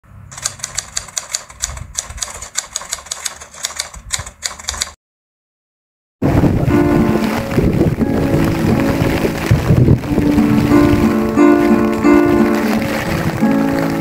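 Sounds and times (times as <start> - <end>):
rapid sharp clicking: 0.3 - 5.0
music: 6.6 - 14.0.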